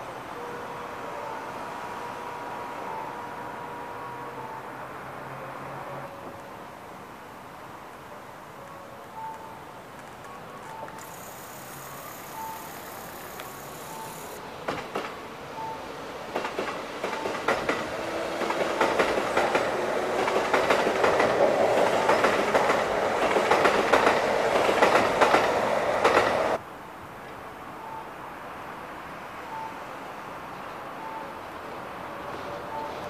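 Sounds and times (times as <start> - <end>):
short beep: 10.7 - 14.4
train wheels clattering over rail joints: 16.4 - 26.6.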